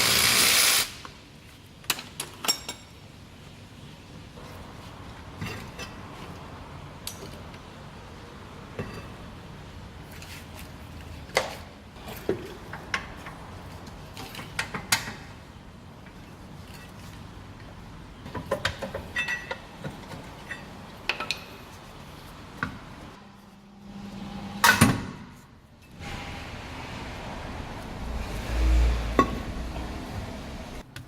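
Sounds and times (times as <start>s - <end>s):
metal tools clinking: 18.9s - 21.4s.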